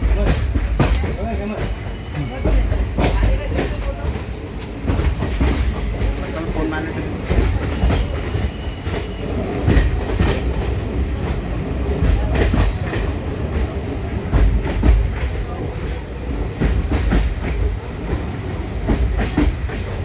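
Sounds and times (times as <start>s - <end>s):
train carriage rumble: 0.0s - 20.0s
wheels clacking over rail joints: 0.0s - 20.0s.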